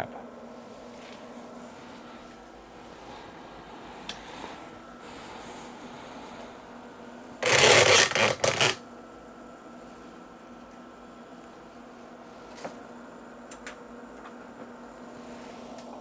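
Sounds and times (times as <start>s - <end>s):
faint steady hum: 0.0s - 16.0s
small hard objects clattering: 7.4s - 8.8s.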